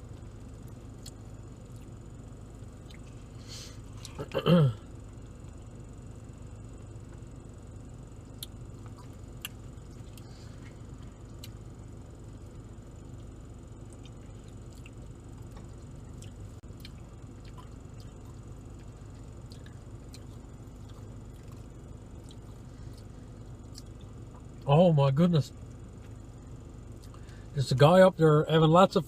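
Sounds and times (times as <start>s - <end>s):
steady low hum: 0.0s - 29.0s
soft chewing and clicks: 0.1s - 2.0s, 2.7s - 3.2s, 3.9s - 4.4s, 8.2s - 11.7s, 13.0s - 24.7s, 25.9s - 26.3s, 26.9s - 27.4s.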